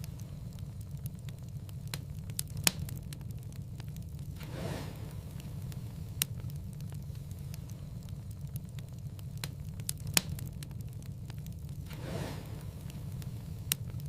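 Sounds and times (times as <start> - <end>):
wood fire crackling: 0.0 - 14.0
soft whoosh: 4.4 - 6.2, 11.9 - 13.7.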